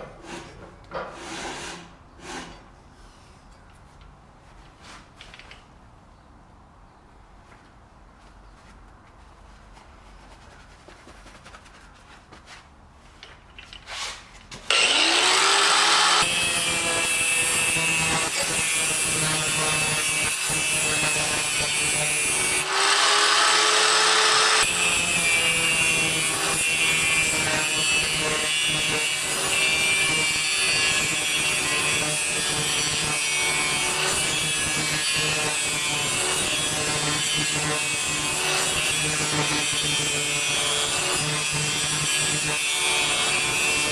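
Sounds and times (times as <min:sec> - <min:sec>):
power grinder grinding steel: 0:14.7 - 0:43.9.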